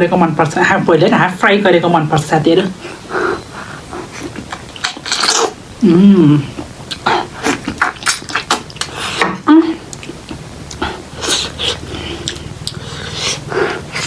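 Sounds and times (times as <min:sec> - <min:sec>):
chewing and mouth smacks: 0:04.2 - 0:05.6, 0:06.6 - 0:09.1, 0:09.9 - 0:14.0
person humming: 0:05.8 - 0:07.7.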